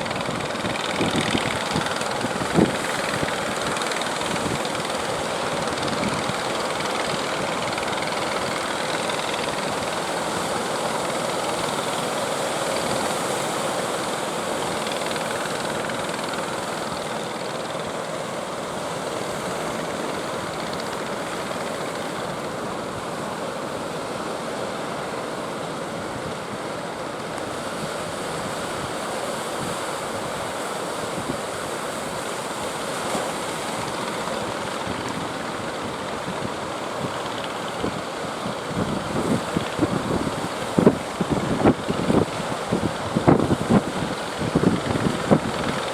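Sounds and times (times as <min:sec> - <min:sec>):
strong wind: 0:00.0 - 0:09.8, 0:33.8 - 0:45.9
sea surf breaking: 0:00.0 - 0:22.3, 0:26.6 - 0:45.9.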